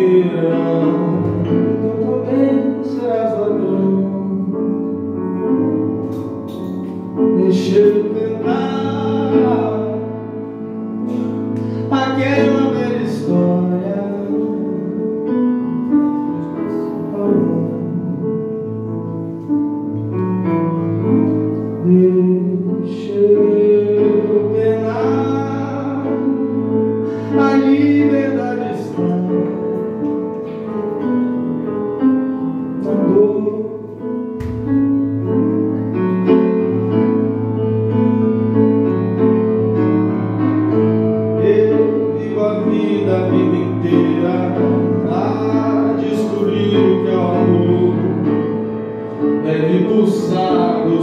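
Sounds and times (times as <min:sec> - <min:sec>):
piano chords: 0:00.0 - 0:51.0.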